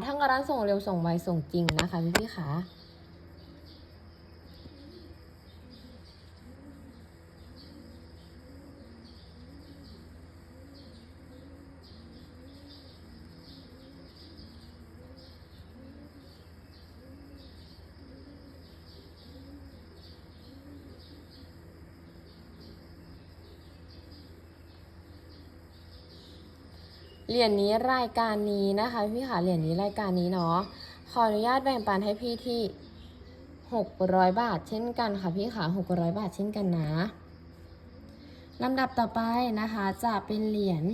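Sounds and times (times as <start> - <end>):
steady low hum: 0.0 - 40.9
bird low rising and falling call: 4.5 - 27.9.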